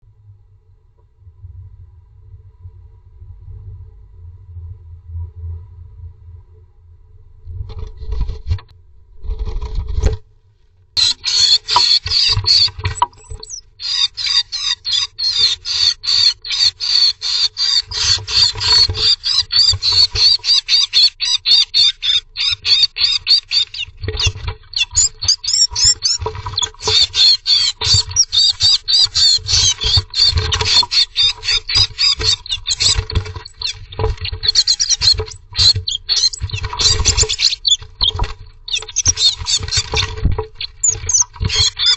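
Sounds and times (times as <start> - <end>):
high-pitched bird chirping: 11.0 - 41.9.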